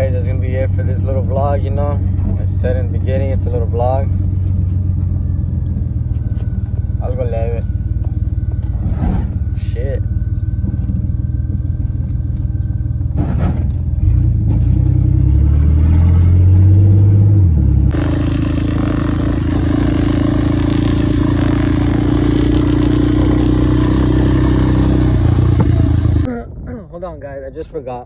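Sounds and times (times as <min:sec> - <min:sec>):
vehicle engine accelerating: 0:00.0 - 0:26.3
loud hiss: 0:17.9 - 0:26.2.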